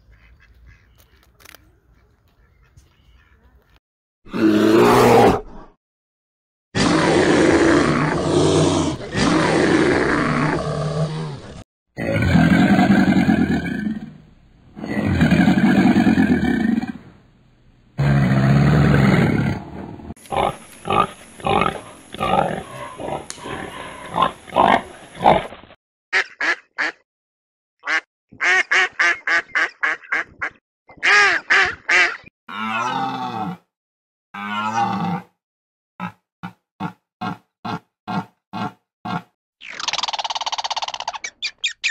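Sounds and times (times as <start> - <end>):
deep rumbling growl: 18.0 - 24.3.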